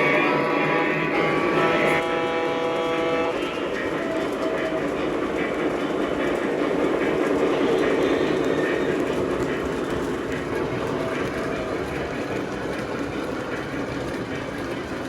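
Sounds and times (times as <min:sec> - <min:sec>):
model train running on track: 0:00.0 - 0:15.0.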